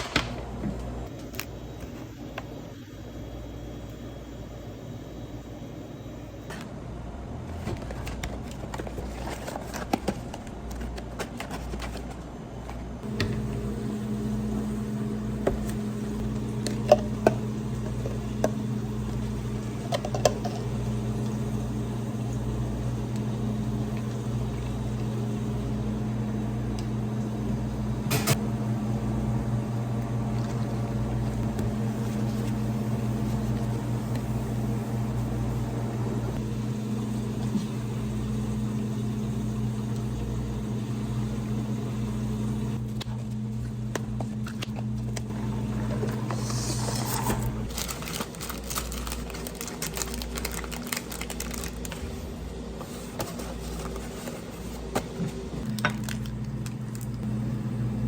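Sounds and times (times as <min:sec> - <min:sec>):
electric motor humming: 0:13.0 - 0:42.8.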